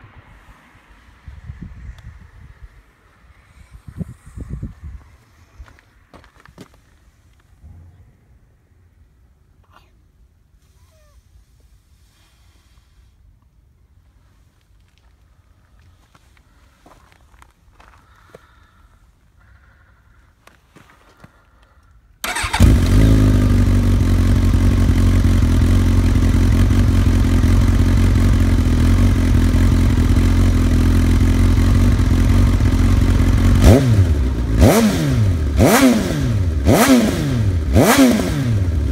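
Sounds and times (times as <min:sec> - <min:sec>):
engine revving from throttle blips: 0:22.2 - 0:38.9
motorcycle engine idling: 0:22.2 - 0:38.9.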